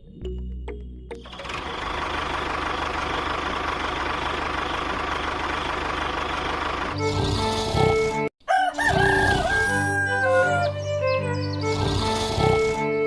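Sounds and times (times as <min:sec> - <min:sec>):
music: 0:00.0 - 0:01.8, 0:06.9 - 0:13.0
mechanical running noise: 0:01.3 - 0:07.2
rooster crowing: 0:08.4 - 0:10.8.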